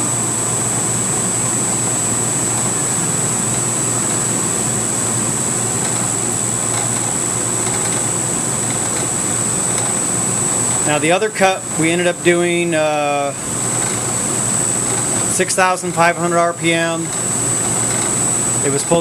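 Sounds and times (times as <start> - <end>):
high whine: 0.0 - 19.0
milling machine cutting: 5.5 - 19.0.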